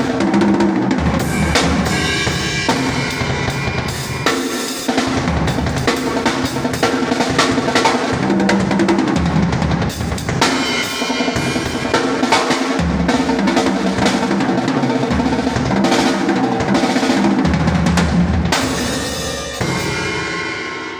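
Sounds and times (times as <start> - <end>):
drum kit playing: 0.0 - 20.9
cymbal crash: 1.2 - 6.8, 15.2 - 20.9.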